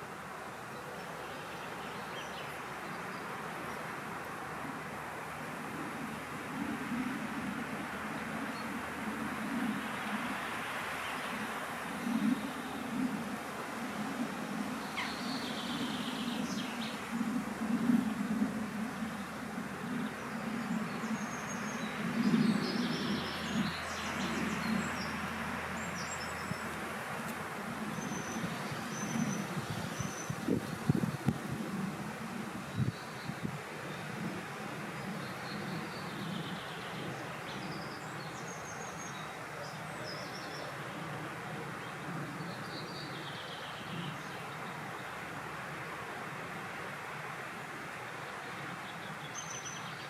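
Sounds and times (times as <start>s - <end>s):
wind blowing: 0.0s - 50.0s
small birds chirping: 14.7s - 31.4s.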